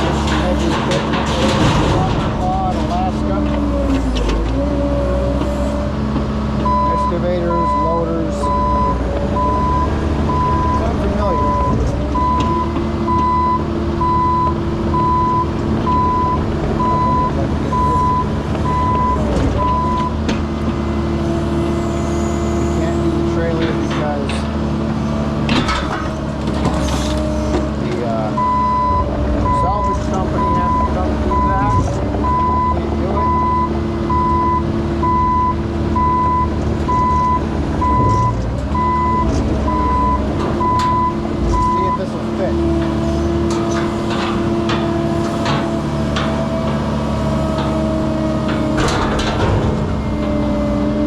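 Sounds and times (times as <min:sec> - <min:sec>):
excavator diesel engine running: 0:00.0 - 0:51.0
travel alarm beeping: 0:06.6 - 0:20.2, 0:28.4 - 0:42.0.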